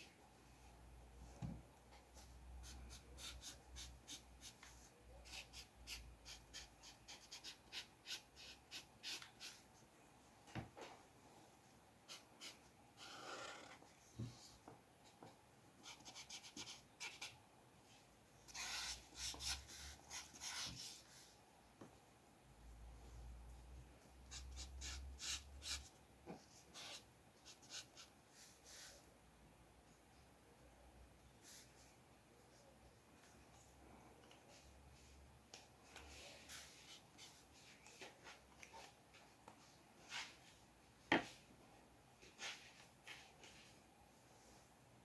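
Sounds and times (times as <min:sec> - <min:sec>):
drawing tool scratching paper: 0:18.5 - 0:20.9.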